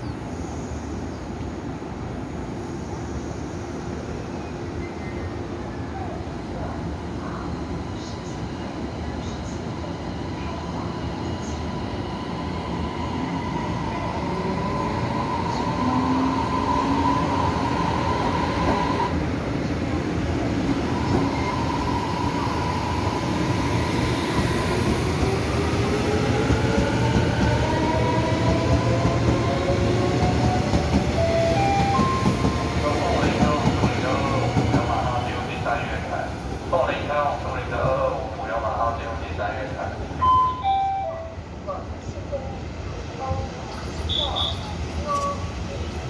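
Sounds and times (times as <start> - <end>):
train wheels rumbling on rails: 13.8 - 38.8.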